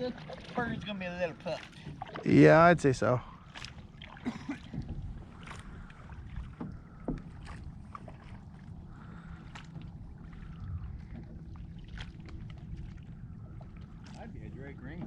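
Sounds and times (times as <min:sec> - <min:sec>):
boat engine rumble: 0:00.0 - 0:15.0.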